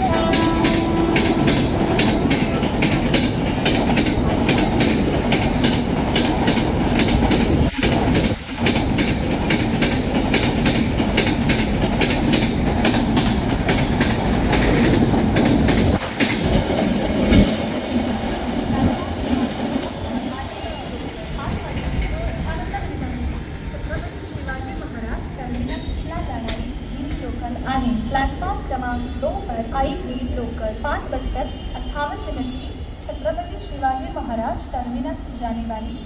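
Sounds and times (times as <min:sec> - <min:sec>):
train wheels clattering: 0:00.0 - 0:20.3
train rumble: 0:00.0 - 0:36.0.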